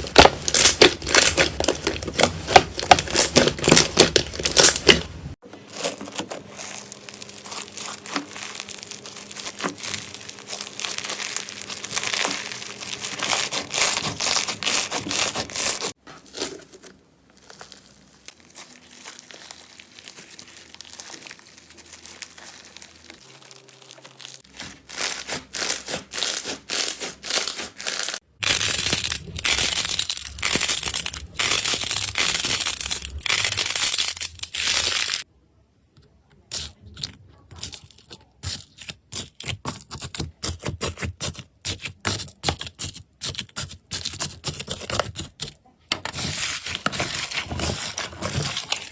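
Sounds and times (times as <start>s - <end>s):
slime crackling as squeezed: 0.0s - 5.1s, 5.7s - 35.3s.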